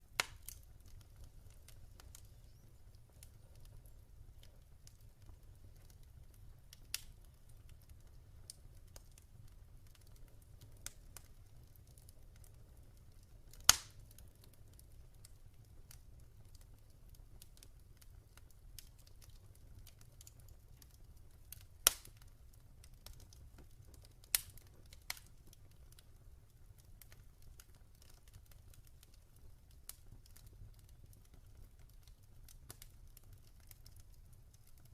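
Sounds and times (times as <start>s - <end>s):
wood fire crackling: 0.0s - 34.9s
sharp pops of fire: 0.1s - 3.6s, 13.5s - 14.2s, 17.4s - 26.0s.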